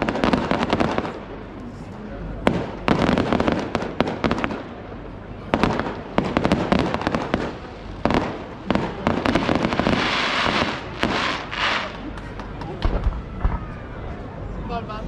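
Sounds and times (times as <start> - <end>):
firework bangs: 0.0 - 1.6, 2.3 - 13.9
crackling firework shells: 2.4 - 13.9.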